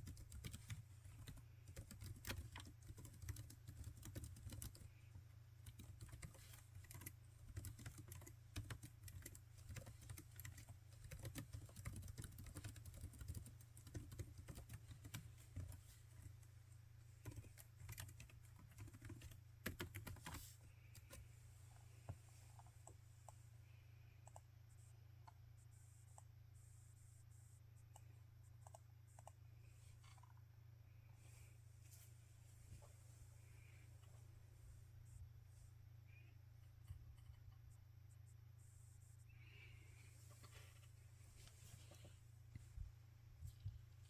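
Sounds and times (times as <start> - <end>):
laptop keyboard typing: 0.0 - 5.0, 5.6 - 16.3, 17.2 - 21.2, 24.2 - 24.5, 27.9 - 29.4.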